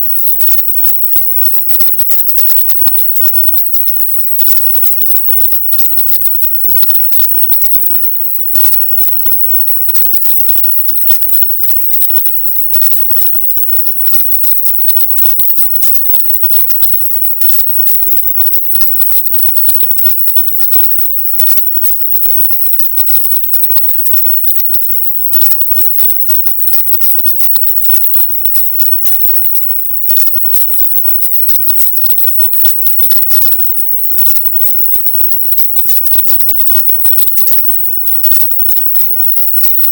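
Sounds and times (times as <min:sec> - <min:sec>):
harsh crackling noise: 0:00.0 - 0:39.9.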